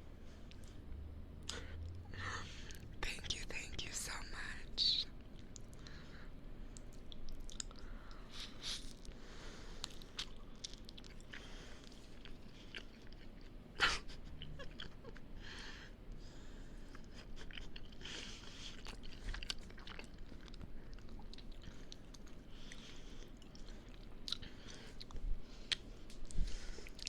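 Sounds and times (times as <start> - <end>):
person chewing: 6.7 - 15.2, 16.9 - 27.0.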